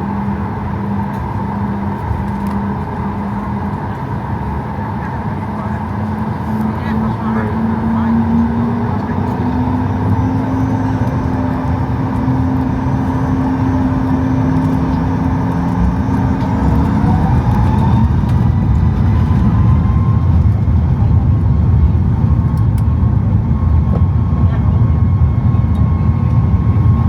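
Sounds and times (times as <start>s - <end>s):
steady cabin hum: 0.0s - 22.4s
aircraft engine rumble: 0.0s - 27.0s
rising engine tone: 6.9s - 20.7s.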